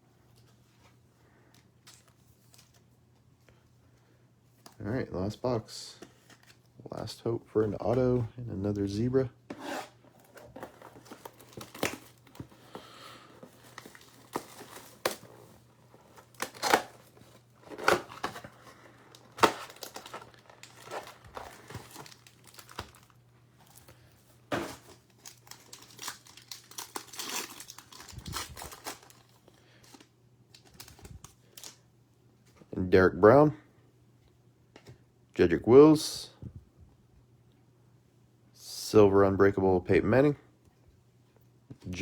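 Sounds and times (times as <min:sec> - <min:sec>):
plastic wrappers tearing and crinkling: 0:10.2 - 0:31.8.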